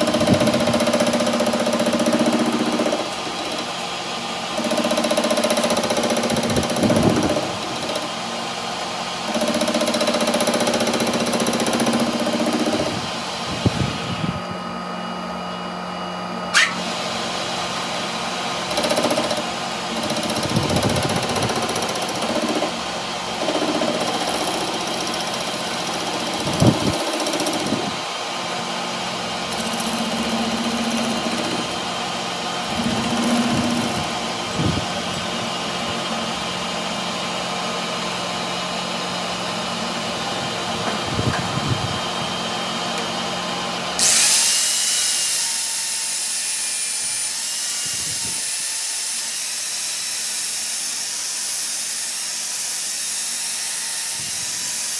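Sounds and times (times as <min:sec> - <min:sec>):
loud steady hiss: 0:44.0 - 0:47.8
power tool motor humming: 0:44.0 - 0:54.9.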